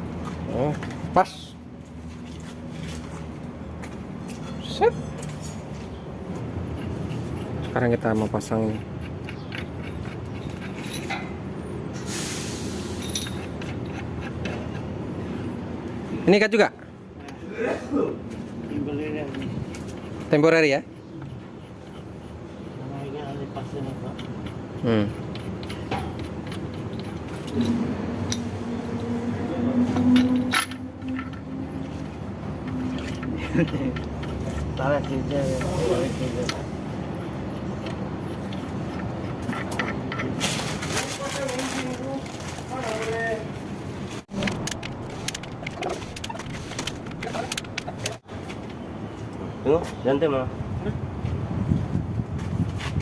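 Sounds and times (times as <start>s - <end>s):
low workshop rumble: 0.1s - 48.4s
metal tools clinking and knocking: 8.4s - 11.5s, 12.9s - 14.8s, 29.9s - 36.6s
short hiss: 12.0s - 13.0s.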